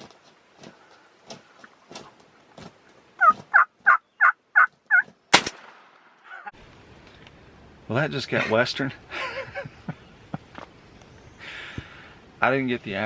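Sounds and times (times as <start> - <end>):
wild turkey yelping: 3.2 - 5.1, 6.2 - 6.6
shotgun firing: 5.3 - 6.0.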